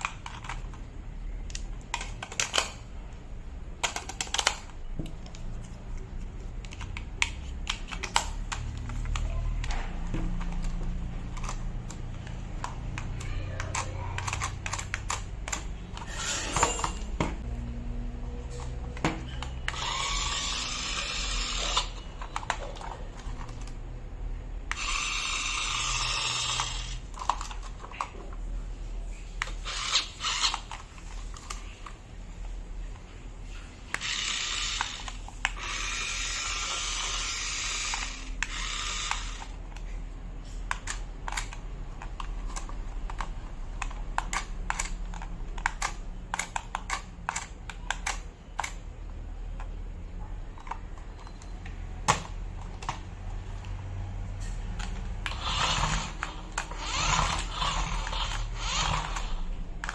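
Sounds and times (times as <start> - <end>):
toy car electric motor running: 10.4 - 16.6, 19.4 - 23.7, 24.7 - 28.0, 29.4 - 31.6, 33.9 - 39.8, 40.8 - 48.8, 54.8 - 59.9.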